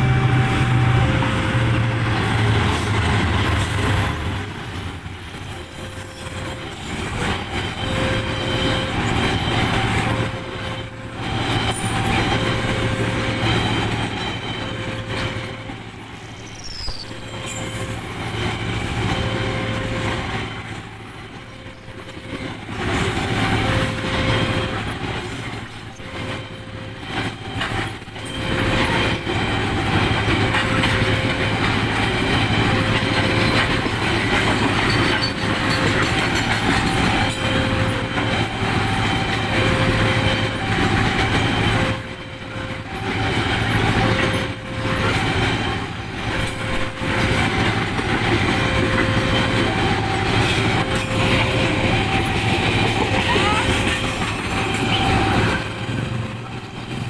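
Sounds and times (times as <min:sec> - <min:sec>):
train rumbling past: 0:00.0 - 0:57.0
wheels clattering over rails: 0:16.7 - 0:57.0.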